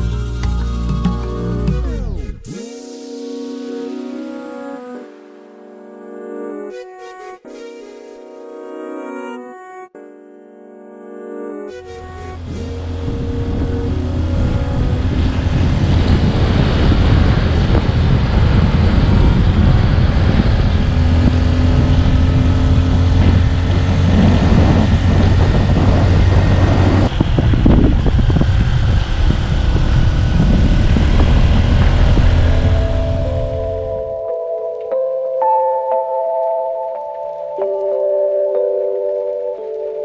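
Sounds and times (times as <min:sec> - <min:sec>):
wind buffeting microphone: 0:12.3 - 0:34.2
motorbike engine running: 0:12.4 - 0:33.8.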